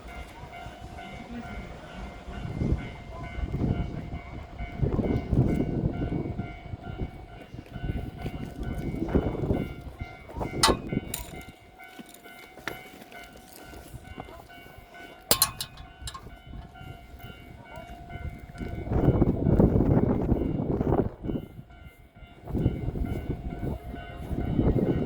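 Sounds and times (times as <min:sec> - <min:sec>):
train rumble: 0:00.0 - 0:25.0
metallic clanks: 0:10.5 - 0:12.2, 0:15.3 - 0:16.8.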